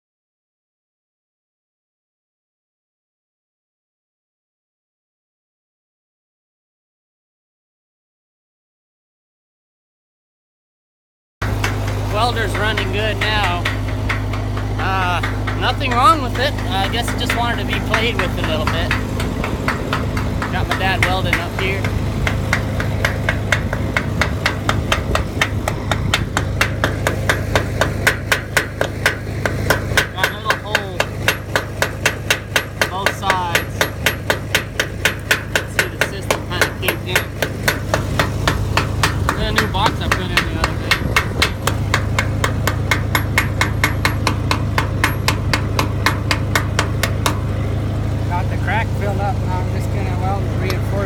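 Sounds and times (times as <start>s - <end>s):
low engine hum: 11.4s - 51.0s
rapid metallic tapping: 11.4s - 51.0s
rapid metallic ticking: 11.4s - 51.0s.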